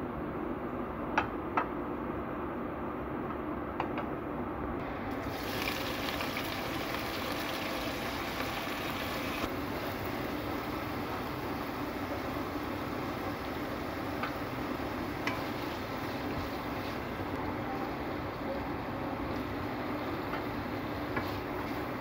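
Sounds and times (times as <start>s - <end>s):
food sizzling in hot oil: 5.1s - 17.3s.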